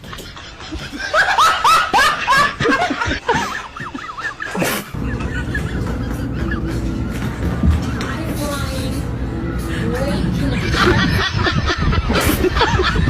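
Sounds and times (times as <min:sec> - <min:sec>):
high-pitched laughs: 0:00.0 - 0:07.0, 0:10.4 - 0:13.0.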